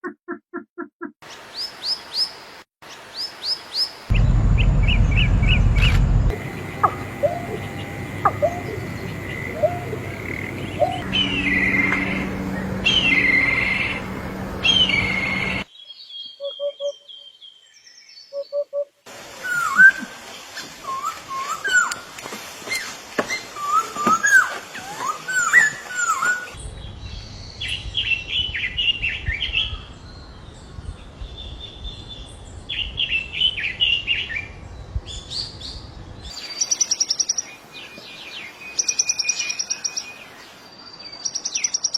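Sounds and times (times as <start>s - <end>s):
birds chirping and whistling: 4.1s - 17.1s, 22.7s - 29.9s.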